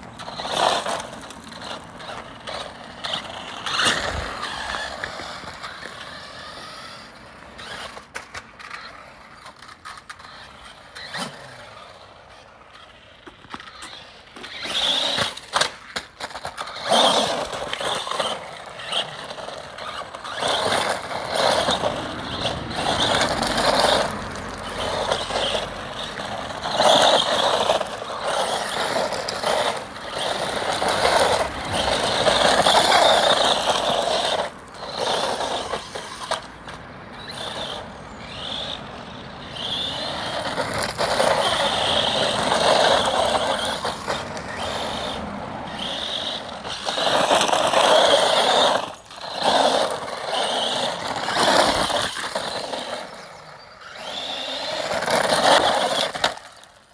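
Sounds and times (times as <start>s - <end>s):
tyres rushing on ground: 0.0s - 12.4s, 13.2s - 56.8s
toy car motors whining: 0.0s - 56.9s.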